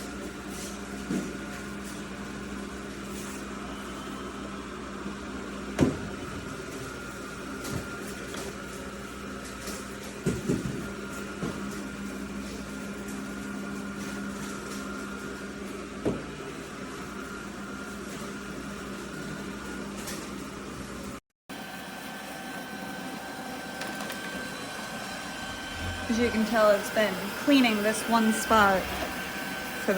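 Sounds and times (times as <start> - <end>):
robot vacuum motor hum: 21.6 - 29.9.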